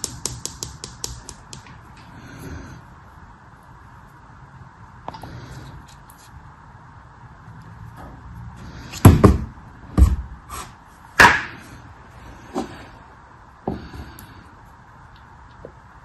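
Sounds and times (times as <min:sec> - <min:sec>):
sharp knocks and thuds: 0:09.0 - 0:10.3.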